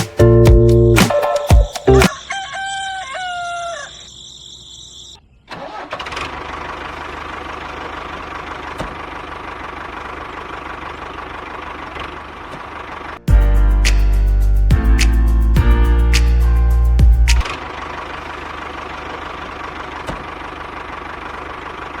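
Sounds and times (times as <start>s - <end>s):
crowing call: 2.1s - 5.2s.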